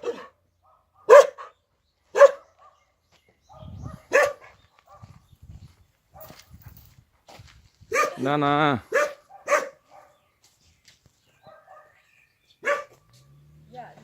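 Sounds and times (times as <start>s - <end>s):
dog barking: 0.0s - 2.8s, 3.5s - 5.2s, 7.9s - 8.3s, 8.9s - 10.2s, 11.4s - 12.0s, 12.6s - 13.0s
faint low scuffing: 2.6s - 8.2s, 9.1s - 11.9s.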